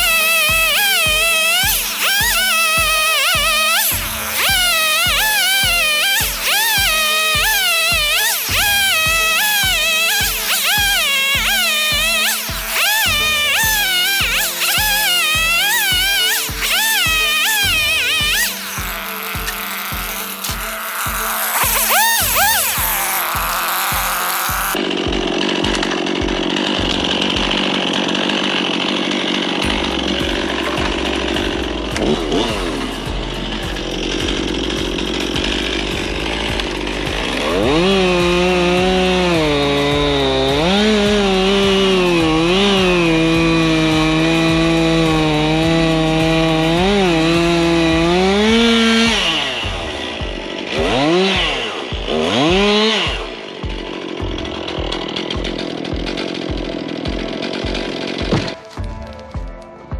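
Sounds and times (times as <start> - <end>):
chainsaw cutting firewood: 0.0 - 59.8.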